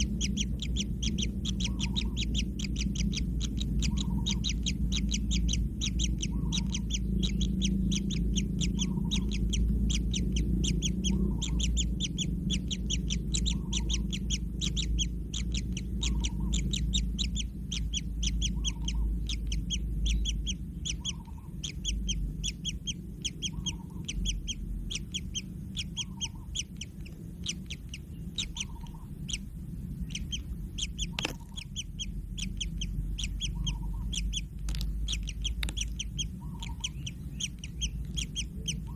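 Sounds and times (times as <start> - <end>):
nestlings begging calls: 0.0 - 38.9
steady low rumble: 0.0 - 38.9.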